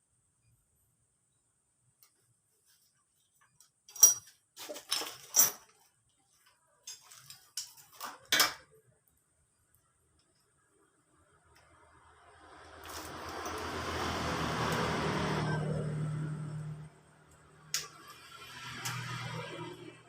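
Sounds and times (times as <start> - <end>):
metal tools clinking: 3.9 - 5.9.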